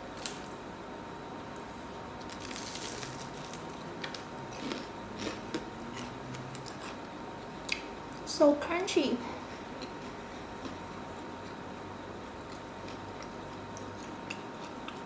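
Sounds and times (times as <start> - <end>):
crunchy food bitten and chewed: 2.2 - 8.2, 12.4 - 15.0.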